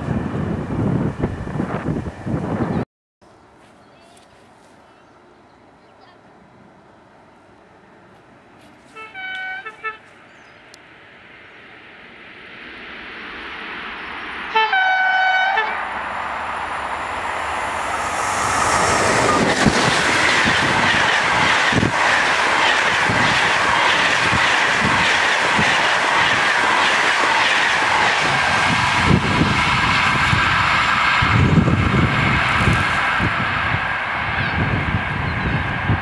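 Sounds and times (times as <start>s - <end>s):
train passing: 0.0s - 2.8s, 3.4s - 36.0s
train horn blast: 8.9s - 10.2s, 14.5s - 15.8s.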